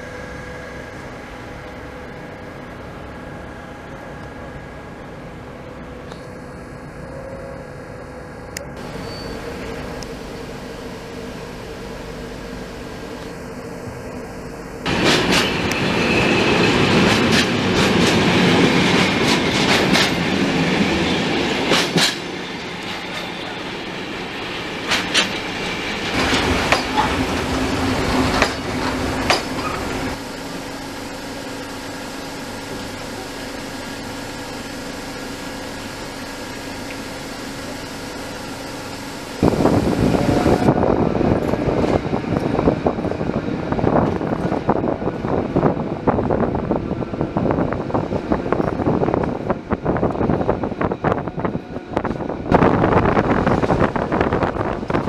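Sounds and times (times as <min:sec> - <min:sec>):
electric train humming: 0:00.0 - 0:55.0
wheels clacking over rail joints: 0:14.9 - 0:23.6, 0:24.8 - 0:30.2.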